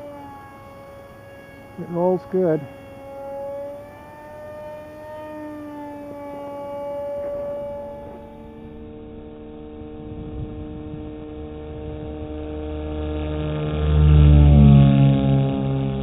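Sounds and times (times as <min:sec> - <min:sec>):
model airplane motor whine: 0:00.0 - 0:16.0
low rumble: 0:07.4 - 0:16.0.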